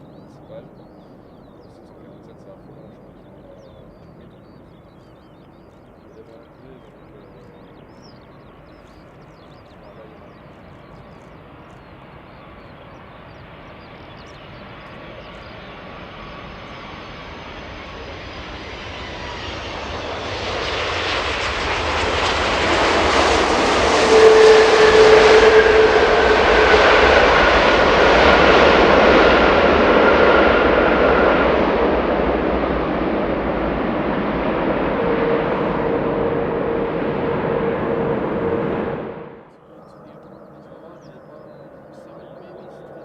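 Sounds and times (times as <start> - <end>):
airliner jet engines: 0.0 - 43.0
whining gliding tones: 14.7 - 40.2.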